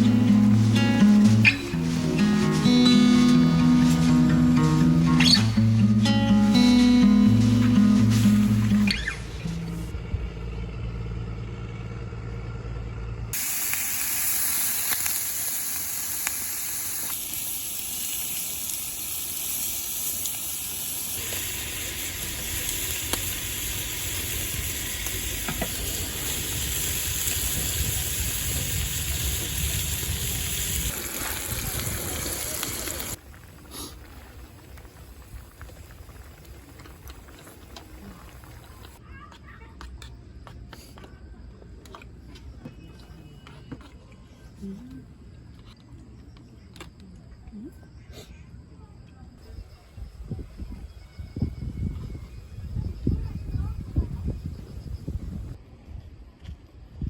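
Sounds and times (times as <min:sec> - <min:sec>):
food sizzling: 0:00.0 - 0:09.0, 0:13.4 - 0:39.0
low hum: 0:00.0 - 0:13.4.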